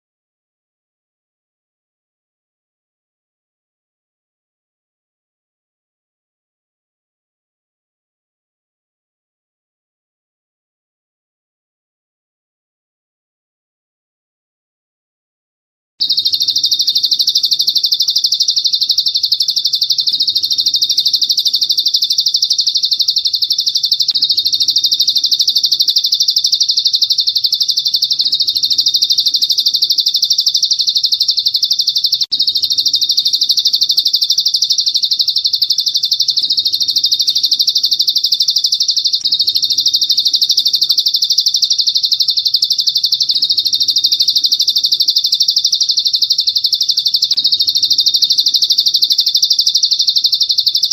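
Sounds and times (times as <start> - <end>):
rapid high-pitched bird trill: 16.0 - 50.9.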